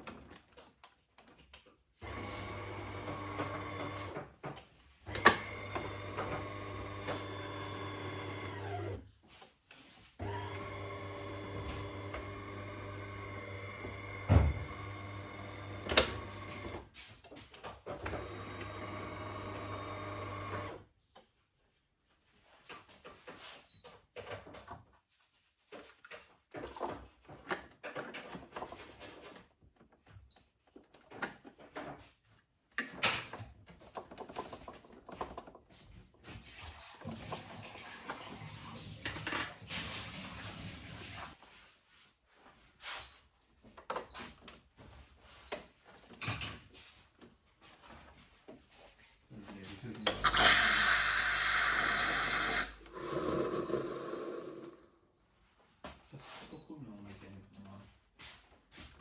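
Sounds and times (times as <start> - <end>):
small geared electric motor humming: 5.1 - 9.0, 10.2 - 16.8, 18.1 - 20.8, 50.1 - 54.9.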